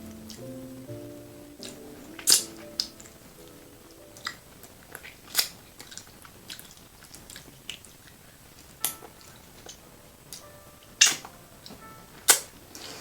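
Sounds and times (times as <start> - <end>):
close-miked chewing with crunches: 4.0 - 11.3.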